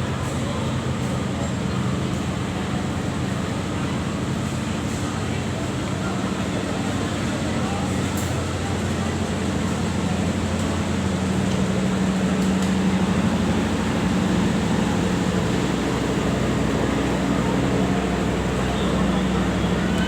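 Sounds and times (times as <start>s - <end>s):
diesel locomotive engine droning: 0.0s - 20.0s.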